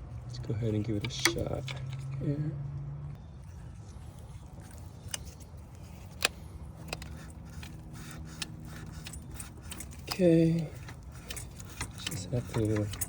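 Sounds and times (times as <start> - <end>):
hose tool clicking and scraping: 0.9 - 2.2, 4.6 - 13.0.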